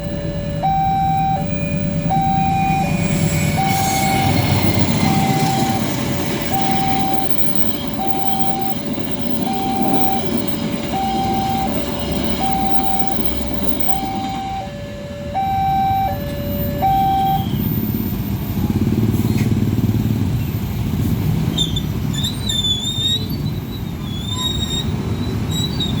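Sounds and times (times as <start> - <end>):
level-crossing warning alarm: 0.0 - 18.8
low rumble of traffic: 0.0 - 26.0.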